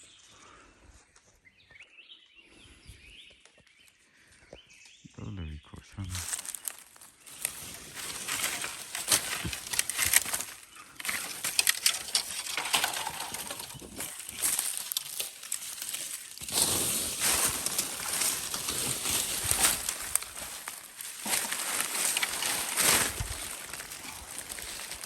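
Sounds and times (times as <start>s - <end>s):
dry leaves and brush rustling: 6.1s - 25.0s.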